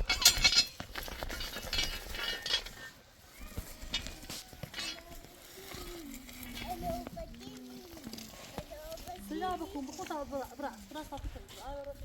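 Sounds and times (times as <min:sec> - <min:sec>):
hard objects clinking and clattering: 0:00.0 - 0:03.0, 0:03.6 - 0:05.4
rustling: 0:00.0 - 0:12.0.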